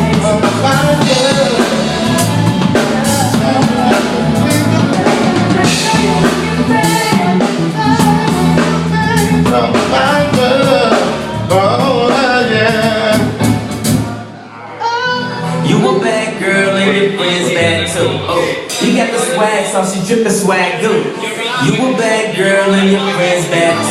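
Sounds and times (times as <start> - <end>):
drum-kit beat: 0.0 - 14.3, 16.8 - 20.0
person singing: 0.0 - 19.8, 20.8 - 23.9.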